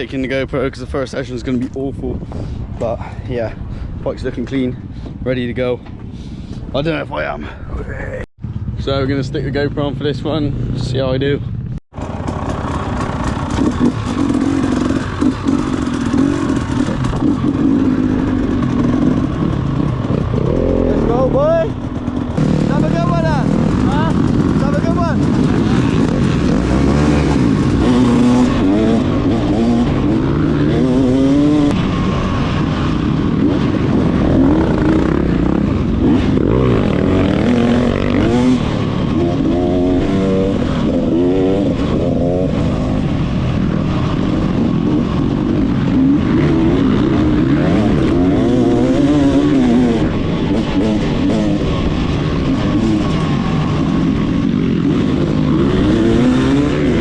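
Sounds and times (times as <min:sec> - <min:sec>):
motocross bike engine revving: 0:11.9 - 0:57.0.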